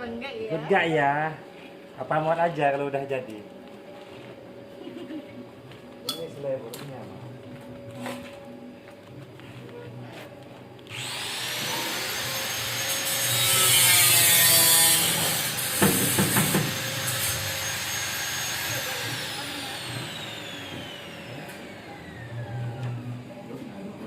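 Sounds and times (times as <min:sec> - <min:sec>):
power tool whine: 0:10.9 - 0:23.3
sharp knocks: 0:15.8 - 0:16.8.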